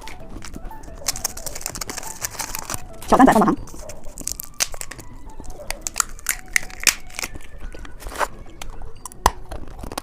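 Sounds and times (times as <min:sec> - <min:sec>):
lollipop crunching: 0:00.0 - 0:10.0
plastic wrapper crinkling: 0:00.0 - 0:10.0.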